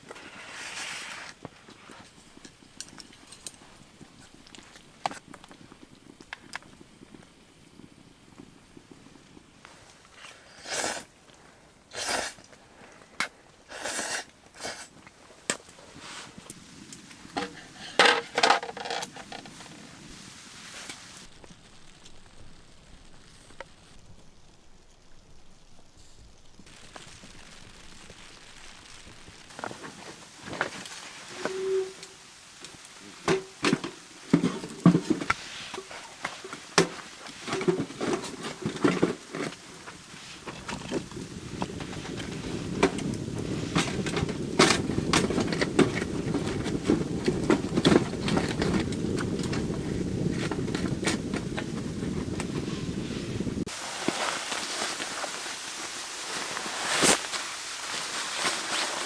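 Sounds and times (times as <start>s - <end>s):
hard objects knocking and clattering: 17.3s - 19.6s
scraping crunching noises: 25.6s - 59.0s.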